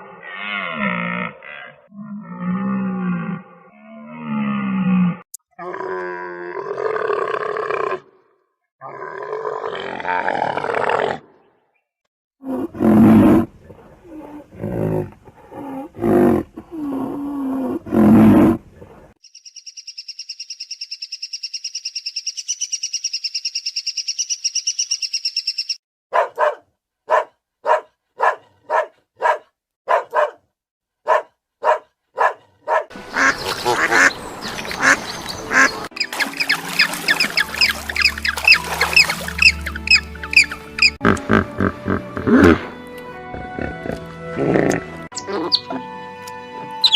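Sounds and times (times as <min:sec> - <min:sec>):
high bird trill: 0:19.2 - 0:25.8, 0:33.1 - 0:41.0
geese honking: 0:33.0 - 0:41.0
ducks quacking: 0:33.0 - 0:42.0.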